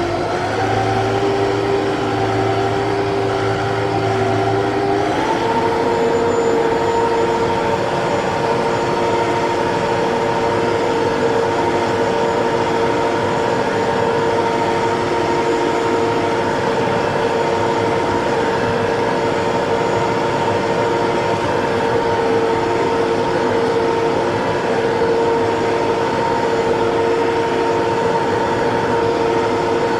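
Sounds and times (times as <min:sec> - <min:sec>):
tractor diesel engine running: 0:00.0 - 0:11.4.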